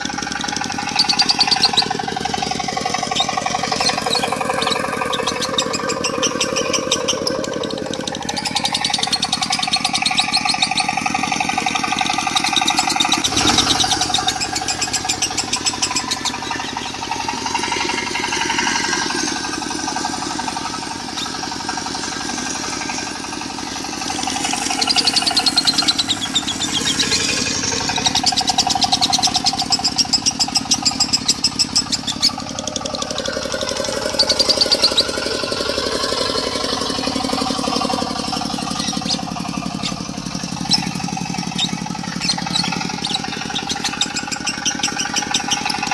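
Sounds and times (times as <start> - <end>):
bird chattering trills: 0.0 - 45.9
diesel engine idling: 0.0 - 45.9.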